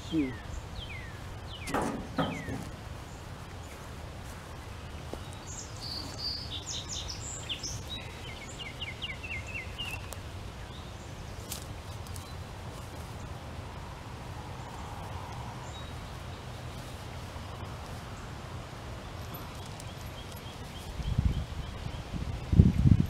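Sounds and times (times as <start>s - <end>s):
songbird chirping and trilling: 0.0s - 13.9s
low outdoor background rumble: 0.0s - 23.0s.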